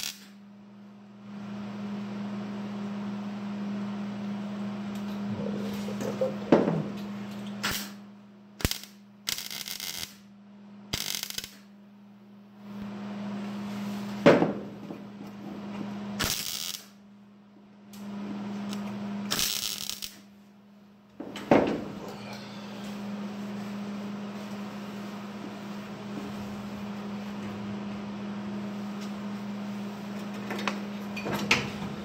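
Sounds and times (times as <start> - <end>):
crackling welding bursts: 0.0 - 0.4, 7.6 - 8.0, 8.6 - 10.3, 10.9 - 11.7, 16.2 - 17.0, 18.7 - 20.3
electrical hum: 0.0 - 32.0.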